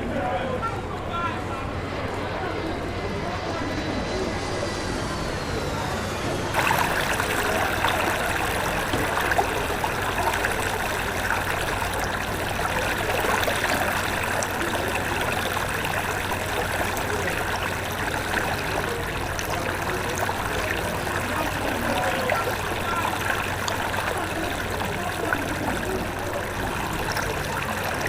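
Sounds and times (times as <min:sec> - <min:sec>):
floodwater rushing: 0:06.5 - 0:28.0.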